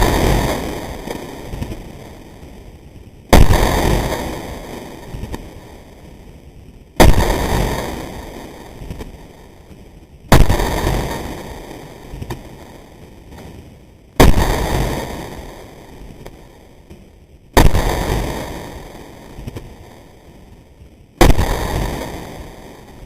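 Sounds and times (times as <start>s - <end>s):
pistol shots with echo: 10.3s - 11.8s, 14.2s - 15.6s.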